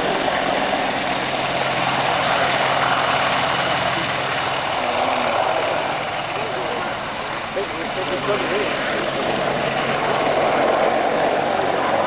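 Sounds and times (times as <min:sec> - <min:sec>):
aircraft roar: 0:00.0 - 0:12.0.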